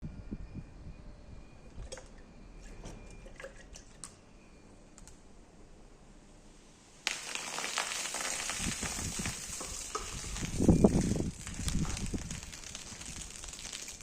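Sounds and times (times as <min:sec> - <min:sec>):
sudden loud hiss: 0:06.9 - 0:14.0.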